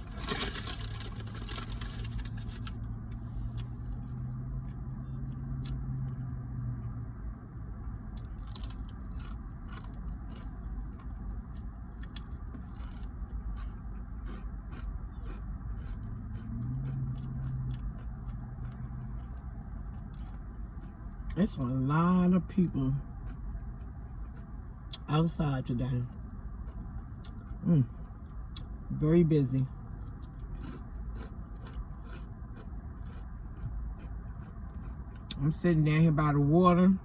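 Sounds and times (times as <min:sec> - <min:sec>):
sharp crunches of chips: 0:00.0 - 0:02.8, 0:08.2 - 0:11.2, 0:12.0 - 0:19.4, 0:30.1 - 0:33.3
person chewing: 0:00.0 - 0:06.3, 0:08.2 - 0:21.4, 0:23.0 - 0:25.1, 0:26.0 - 0:28.8, 0:29.6 - 0:35.5
low hum: 0:00.0 - 0:37.0
low rumble: 0:00.0 - 0:37.0.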